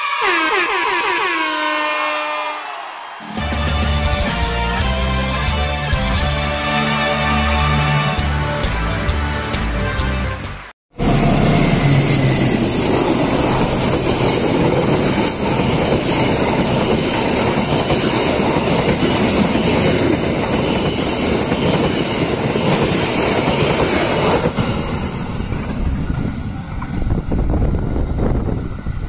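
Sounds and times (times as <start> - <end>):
train wheels clattering on rails: 11.3 - 27.2.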